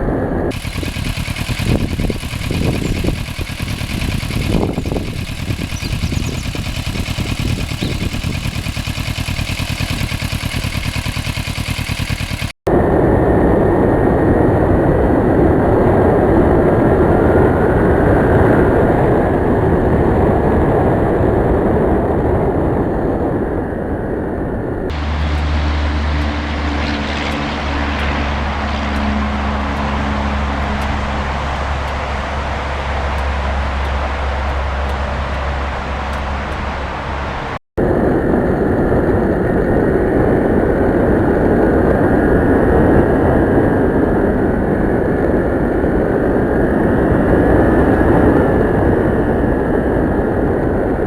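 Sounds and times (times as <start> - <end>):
steady low hum: 0.0 - 13.6, 24.9 - 40.6
wind rushing on microphone: 0.0 - 51.0
motorcycle engine running: 0.5 - 12.6, 24.9 - 37.6.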